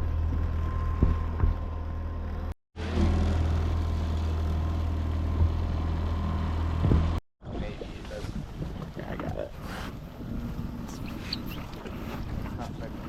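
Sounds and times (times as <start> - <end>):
outboard motor running: 0.0 - 7.2.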